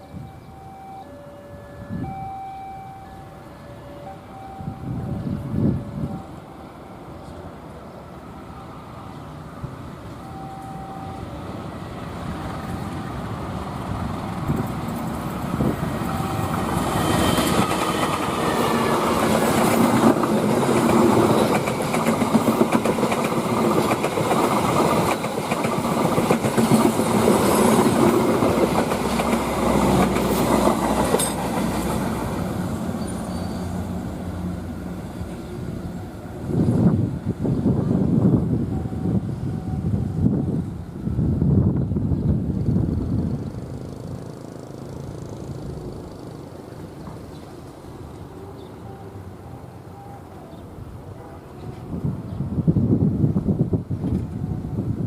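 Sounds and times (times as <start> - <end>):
passenger train passing: 0.0 - 55.0
wheels clattering over rail joints: 19.2 - 32.1.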